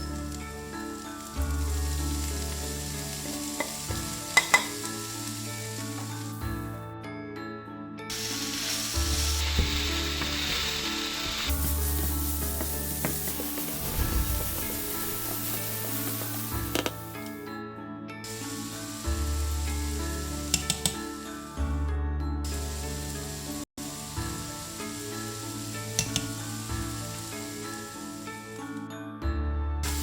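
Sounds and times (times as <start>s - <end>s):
food sizzling in hot oil: 0.0s - 6.8s, 8.1s - 17.4s, 18.3s - 21.5s, 22.5s - 28.6s
sharp utensil clicks: 20.5s - 21.0s, 26.0s - 26.3s.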